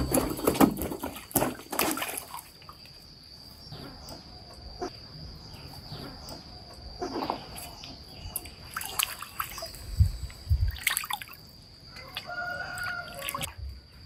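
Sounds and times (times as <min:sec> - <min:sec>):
water splashing and dripping: 0:00.0 - 0:03.2, 0:07.0 - 0:13.7.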